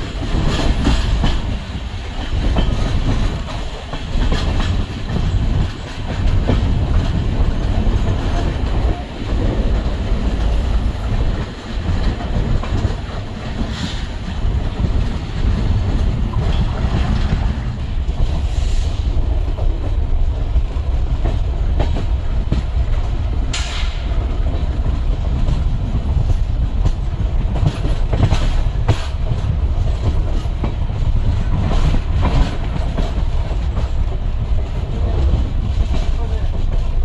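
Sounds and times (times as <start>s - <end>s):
wheels clicking over rail joints: 0.0s - 18.6s
train rumbling: 0.0s - 37.0s.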